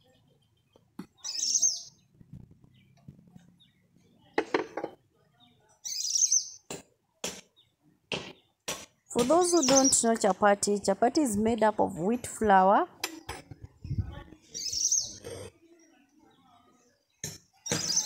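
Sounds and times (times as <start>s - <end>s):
bird chirping: 0.0s - 4.4s, 5.3s - 6.7s, 7.5s - 10.4s, 14.4s - 18.0s.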